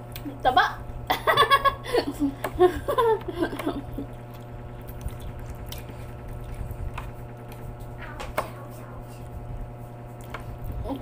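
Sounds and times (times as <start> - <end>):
low hum: 0.0 - 11.0
person laughing: 1.1 - 4.2
wet chewing and squishing: 3.9 - 8.0, 10.1 - 10.8.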